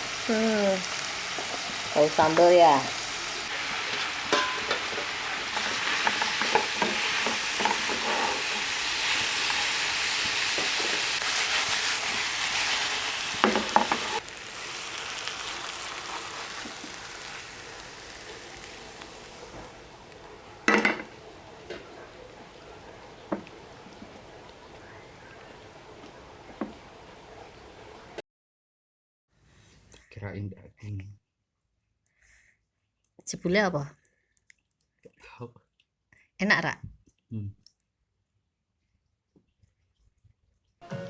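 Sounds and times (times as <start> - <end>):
food sizzling in hot oil: 0.0 - 28.2
stirring in a pan: 0.0 - 28.2
utensil knocks: 20.6 - 22.0.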